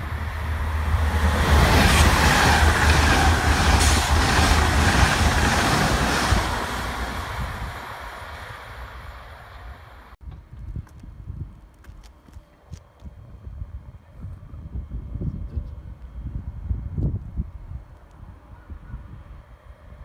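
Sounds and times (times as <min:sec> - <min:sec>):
high-speed train passing: 0:00.0 - 0:10.2.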